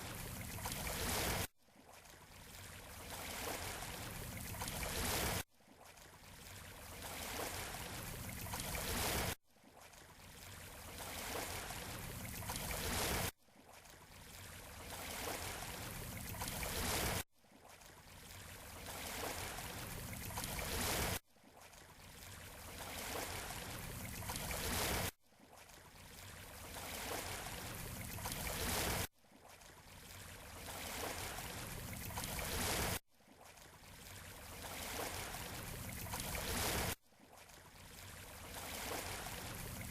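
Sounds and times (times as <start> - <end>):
shoreline surf: 38.3 - 39.9.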